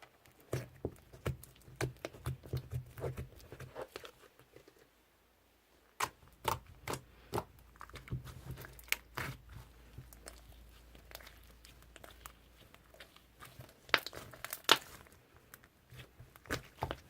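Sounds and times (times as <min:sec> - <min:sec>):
slime crackling when squeezed: 0:12.9 - 0:15.1.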